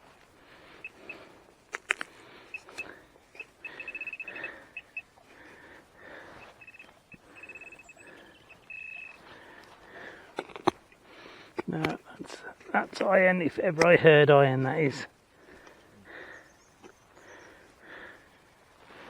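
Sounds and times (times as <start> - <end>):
metal detector beeps: 0.8 - 1.2, 2.5 - 5.1, 6.4 - 9.2
sharp clicks: 1.7 - 4.4.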